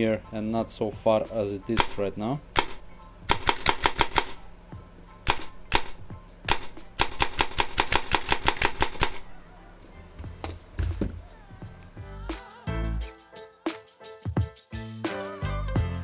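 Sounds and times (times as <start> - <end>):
airsoft gun firing: 1.7 - 9.6.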